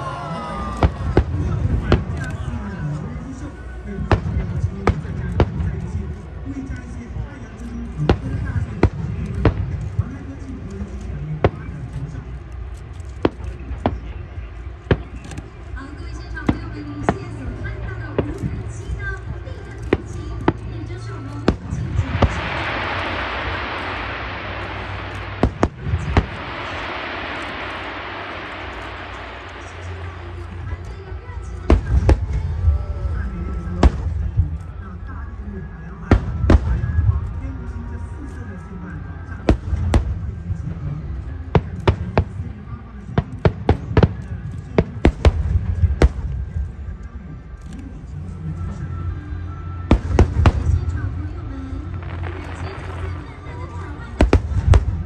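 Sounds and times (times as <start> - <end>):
continuous hiss: 0.0 - 55.0
steady low rumble: 0.0 - 55.0
firework shells bursting: 18.2 - 32.6.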